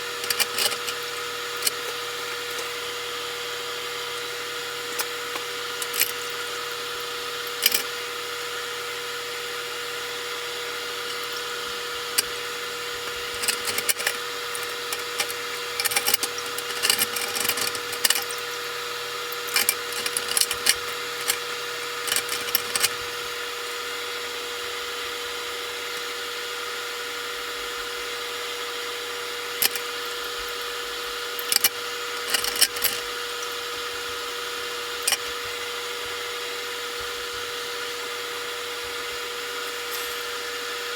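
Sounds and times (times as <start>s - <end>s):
power tool humming: 29.2s - 40.9s.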